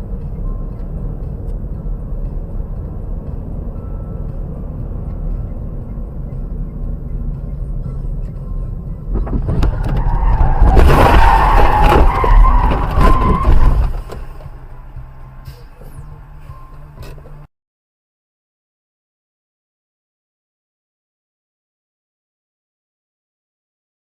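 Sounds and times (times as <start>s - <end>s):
car road rumble: 0.0s - 17.5s
tyres squealing in a skid: 9.3s - 14.2s.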